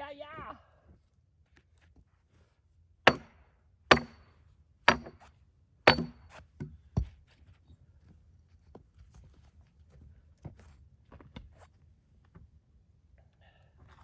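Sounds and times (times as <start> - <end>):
hammer striking steel wedge: 3.1 - 4.2, 4.9 - 5.3, 5.9 - 7.1.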